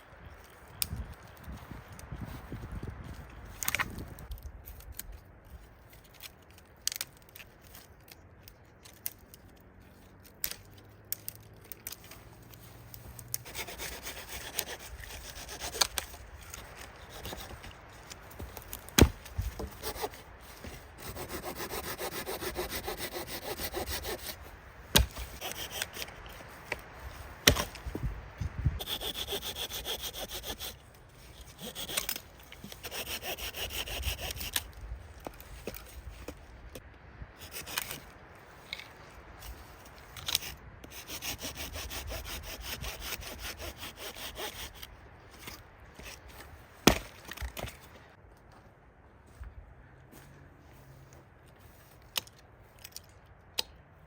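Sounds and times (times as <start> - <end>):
saw cutting through wood: 12.4 - 28.1, 28.8 - 34.7, 37.4 - 38.1, 40.2 - 46.2.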